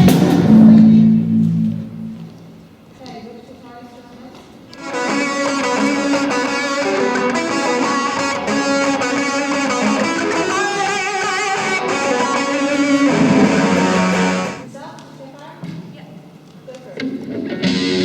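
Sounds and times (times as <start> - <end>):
bass line: 0.0 - 2.6, 11.6 - 14.6
electric guitar chords: 0.0 - 2.8, 4.8 - 14.6, 17.3 - 18.0.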